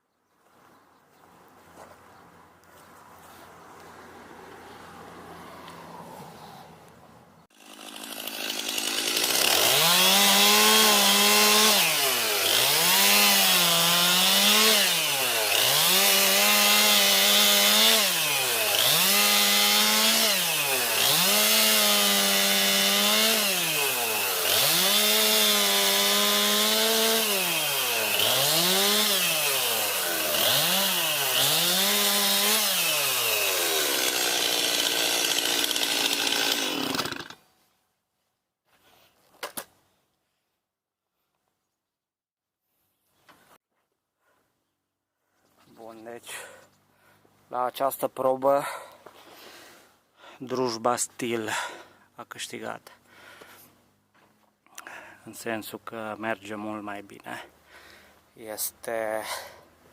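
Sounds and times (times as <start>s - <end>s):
chainsaw cutting wood: 7.5s - 37.5s.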